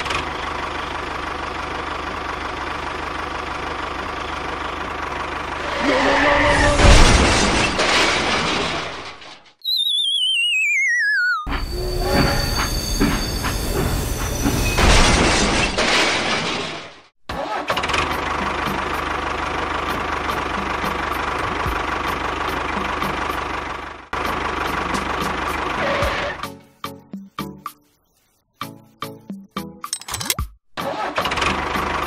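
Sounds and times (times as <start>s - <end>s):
tractor engine running: 0.0s - 6.3s, 17.8s - 25.8s.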